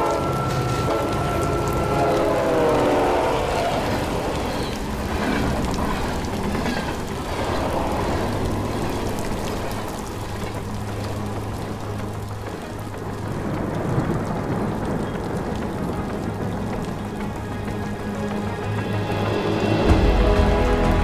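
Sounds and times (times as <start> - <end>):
rain falling on water: 0.0 - 21.0.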